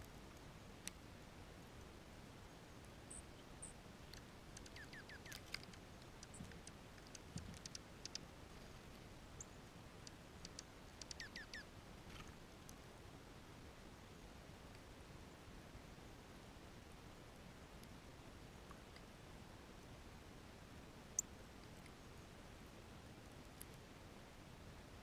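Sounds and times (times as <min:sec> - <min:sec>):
small birds calling faintly: 0:00.0 - 0:25.0.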